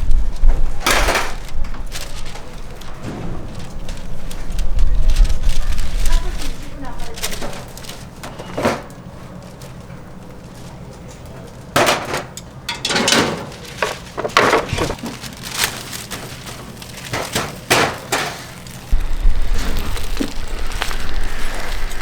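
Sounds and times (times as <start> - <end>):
low rumble: 1.6 - 6.6, 18.9 - 22.0.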